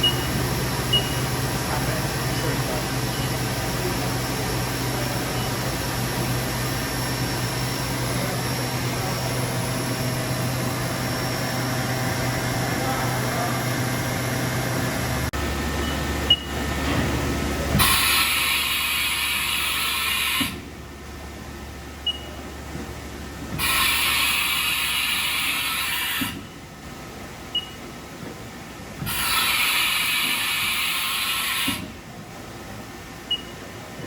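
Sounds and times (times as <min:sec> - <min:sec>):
machine humming: 0:00.0 - 0:26.6.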